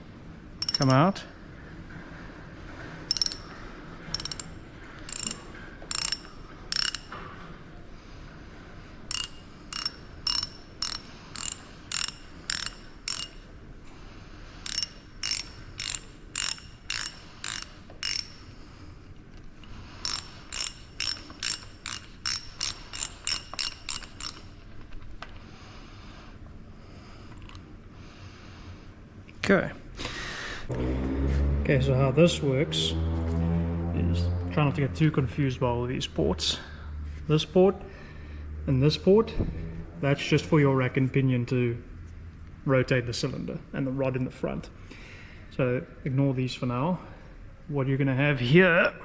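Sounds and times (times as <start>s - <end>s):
ratchet wrench clicking: 0.6s - 1.1s, 3.1s - 7.2s, 9.1s - 13.5s, 14.6s - 18.6s, 20.0s - 24.6s.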